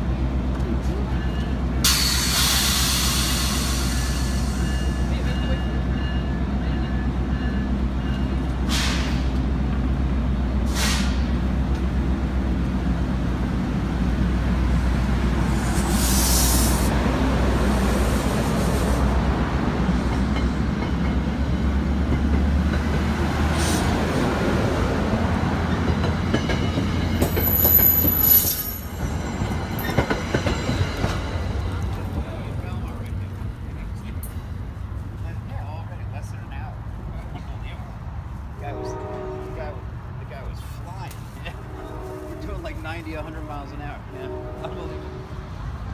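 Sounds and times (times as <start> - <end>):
train wheels rumbling on rail: 0.0 - 45.9
high wheel squeals: 26.7 - 31.5.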